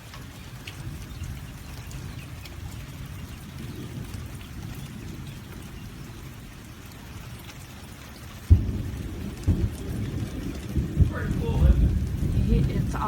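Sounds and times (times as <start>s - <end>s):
rain falling: 0.0s - 13.0s
water running down a rain chain: 0.0s - 13.0s
steady low rumble: 8.5s - 13.0s.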